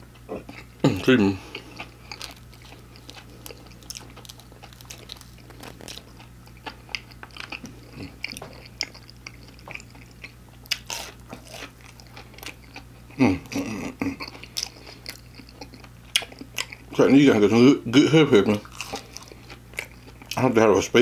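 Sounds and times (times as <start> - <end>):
chewing and biting food: 0.1 - 17.1, 18.4 - 20.4
person humming mm: 13.2 - 14.2.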